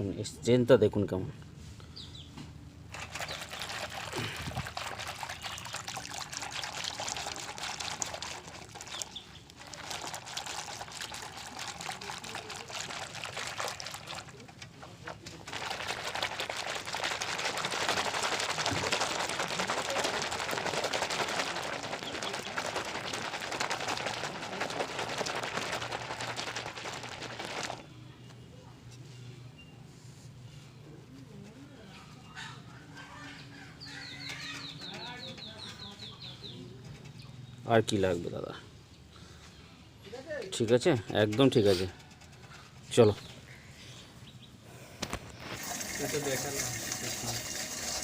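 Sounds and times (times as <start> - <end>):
soapy water splashing: 2.9 - 27.8, 45.6 - 48.0.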